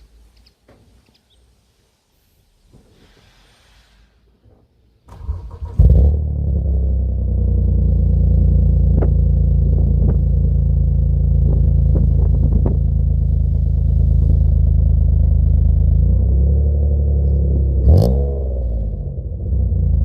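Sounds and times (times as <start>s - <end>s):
car engine idling: 5.1s - 17.9s.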